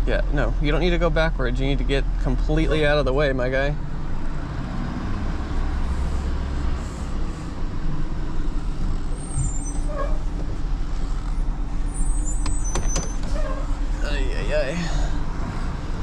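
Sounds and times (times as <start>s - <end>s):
vehicle engine rumbling: 0.0s - 16.0s
high squeaks: 9.1s - 10.4s, 11.2s - 13.9s.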